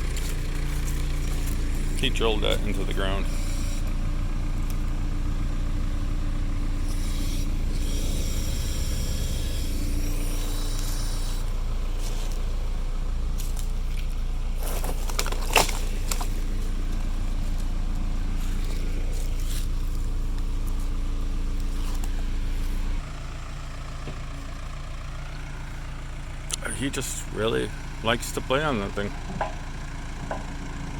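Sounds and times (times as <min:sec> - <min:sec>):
diesel engine running: 0:00.0 - 0:30.9
knocks and scrapes: 0:13.3 - 0:21.0.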